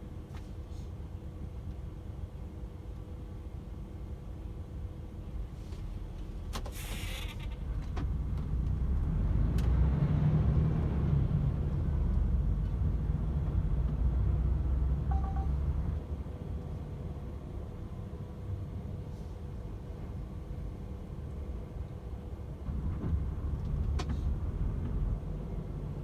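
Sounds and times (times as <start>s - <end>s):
short hiss with clicks: 6.6s - 7.6s
two-note beep: 15.1s - 15.6s.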